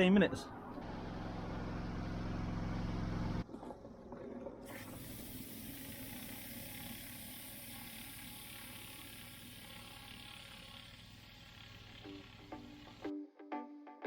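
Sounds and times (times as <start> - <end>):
engine hum: 0.0 - 13.1
pressure washer spraying: 4.7 - 13.1.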